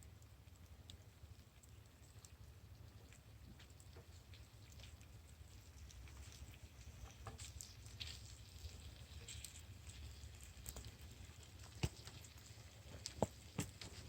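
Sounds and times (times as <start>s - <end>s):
campfire crackling and popping: 0.1s - 14.0s.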